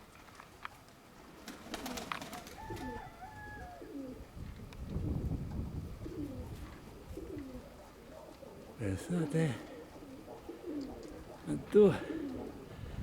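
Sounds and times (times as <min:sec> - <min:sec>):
pigeons cooing: 0:01.3 - 0:04.4, 0:05.5 - 0:13.0
wind rumbling on microphone: 0:02.6 - 0:07.8, 0:12.4 - 0:13.0.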